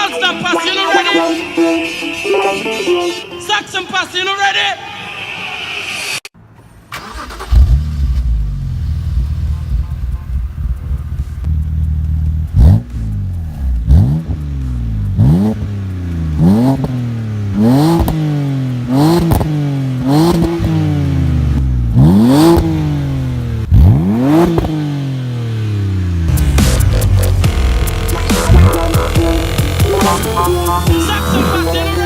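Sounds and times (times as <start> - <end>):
car engine idling and revving: 6.4 - 32.0.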